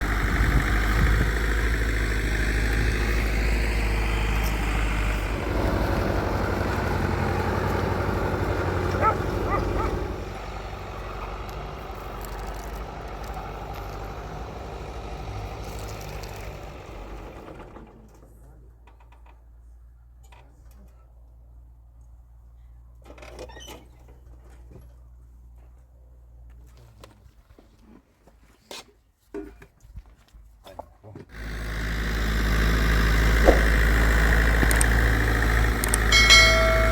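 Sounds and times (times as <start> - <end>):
motor vehicle engine running: 0.0 - 18.0, 31.3 - 36.9.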